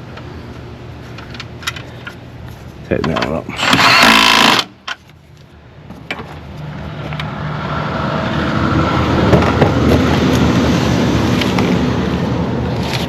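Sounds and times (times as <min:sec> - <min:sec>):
vehicle engine humming: 0:04.7 - 0:13.0.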